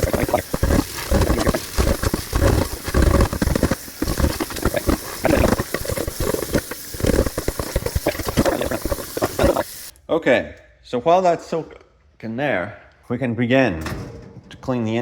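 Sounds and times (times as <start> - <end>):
glass tray being scrubbed: 0.0 - 9.9
water splashing in sink: 0.0 - 9.9.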